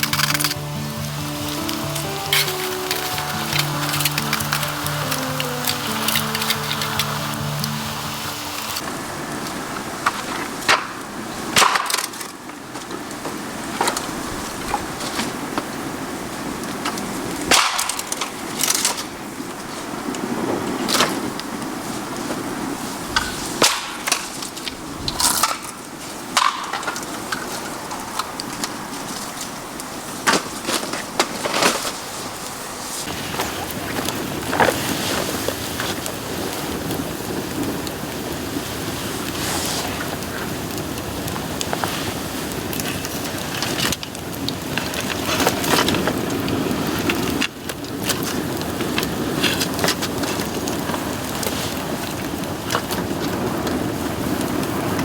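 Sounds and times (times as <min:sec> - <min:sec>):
fire rushing: 0:00.0 - 0:11.7, 0:31.2 - 0:45.0
fire crackling and popping: 0:00.0 - 0:15.7, 0:30.2 - 0:55.0.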